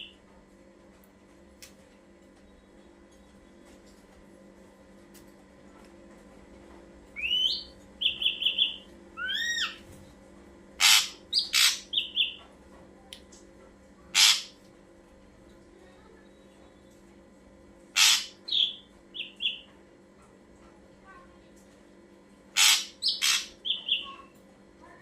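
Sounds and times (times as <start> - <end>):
bird whistling: 7.2 - 9.8, 10.8 - 12.4, 18.0 - 19.6
harsh rasping bird calls: 7.2 - 9.8, 10.8 - 12.4, 14.1 - 14.6, 18.0 - 19.7, 22.6 - 24.3.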